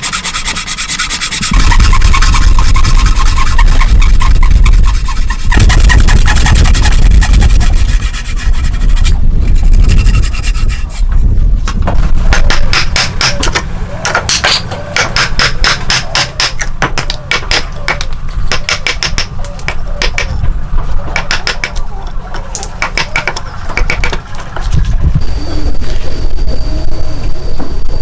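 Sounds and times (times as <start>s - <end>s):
steady low rumble: 1.5s - 13.0s, 23.4s - 28.0s
hand tool knocking on wood: 12.3s - 20.3s, 21.2s - 21.8s, 22.8s - 24.2s.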